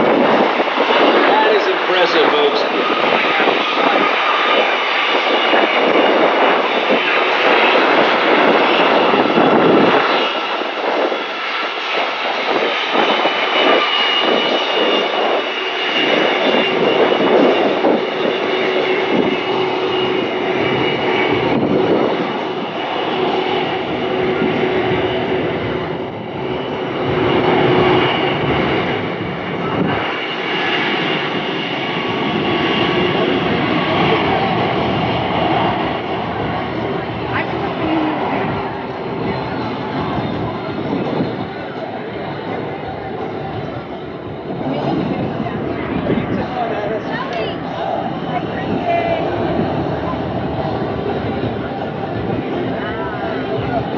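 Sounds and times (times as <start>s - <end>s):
jet engines in reverse thrust: 0.0s - 53.9s.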